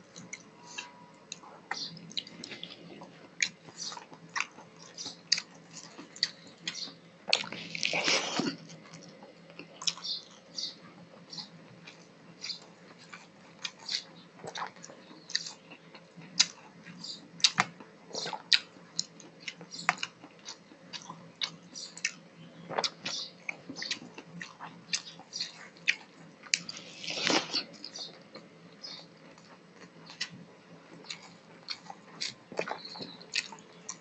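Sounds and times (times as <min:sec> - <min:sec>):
faint low hum: 0:00.0 - 0:34.0
wet chewing and lip smacks: 0:31.0 - 0:34.0.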